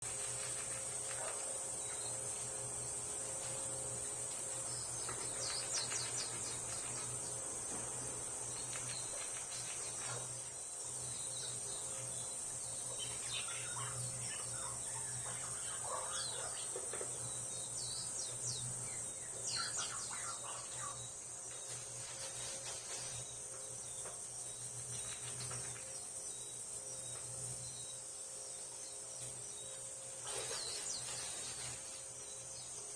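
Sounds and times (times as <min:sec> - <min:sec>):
squirrel gnawing food: 0:00.0 - 0:10.6
small birds chirping: 0:00.0 - 0:32.9
high-pitched insect drone: 0:00.1 - 0:23.5, 0:29.9 - 0:32.5.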